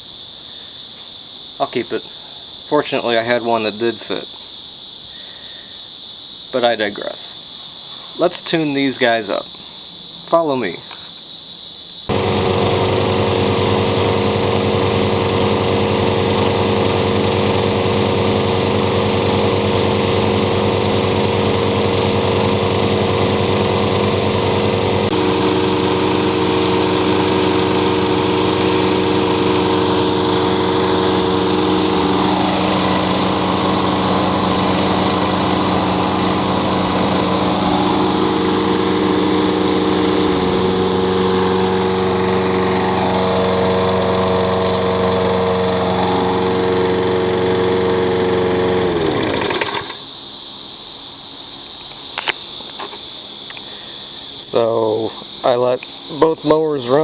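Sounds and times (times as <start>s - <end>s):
lawn mower engines running: 12.1s - 50.1s, 52.2s - 57.0s.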